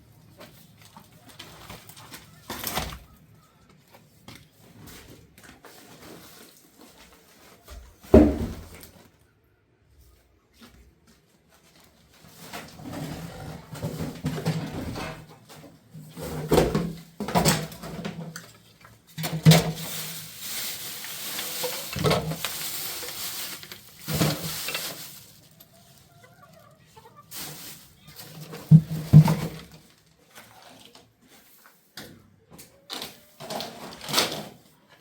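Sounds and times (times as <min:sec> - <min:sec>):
chickens clucking: 0:24.2 - 0:28.8.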